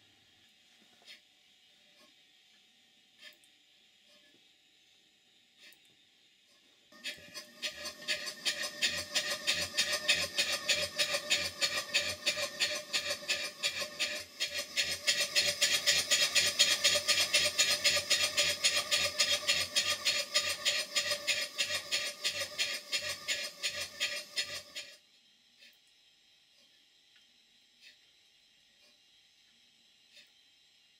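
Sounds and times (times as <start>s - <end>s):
steam pump beating: 7.0s - 24.9s.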